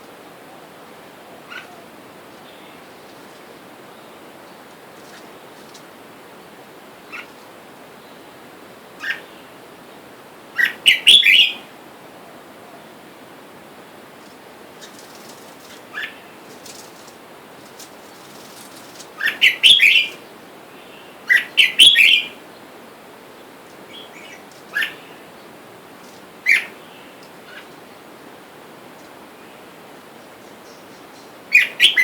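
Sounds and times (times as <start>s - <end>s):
birds chirping: 1.3s - 7.4s, 10.6s - 11.6s, 14.2s - 32.0s.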